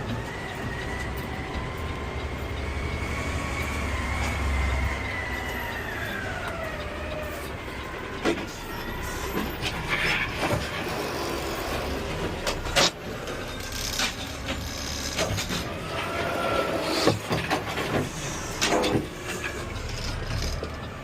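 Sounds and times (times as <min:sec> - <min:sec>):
garbage truck engine rumble: 0:00.0 - 0:21.0.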